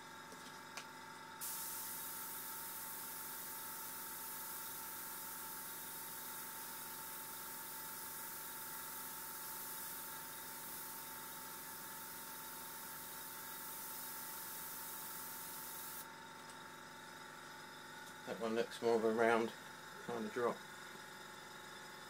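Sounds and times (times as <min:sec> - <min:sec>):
airbrush hissing: 0:01.4 - 0:16.0.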